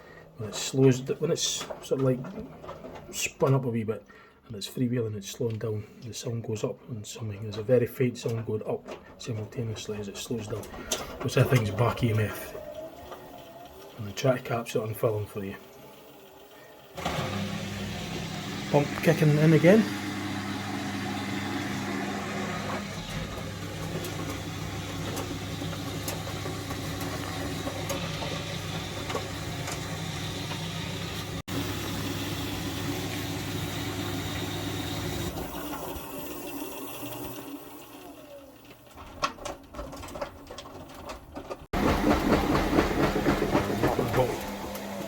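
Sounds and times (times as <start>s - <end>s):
drain pump humming: 9.2s - 39.1s, 41.7s - 45.0s.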